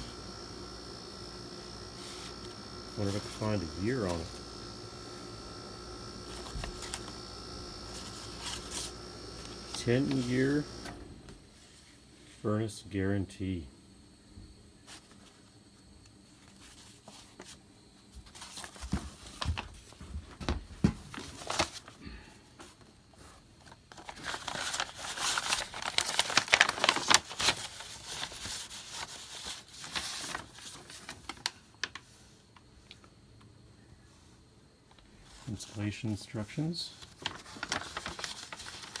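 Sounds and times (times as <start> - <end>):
paper crinkling: 0.0 - 11.3, 21.1 - 32.2, 36.9 - 39.0.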